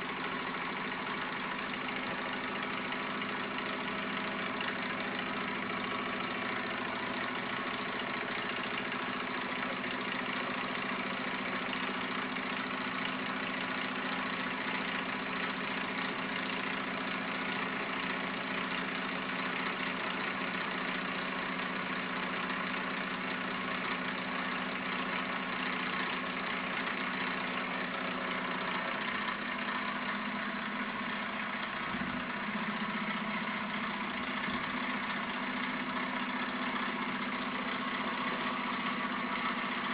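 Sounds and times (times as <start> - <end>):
stirling engine running: 27.1 - 39.9.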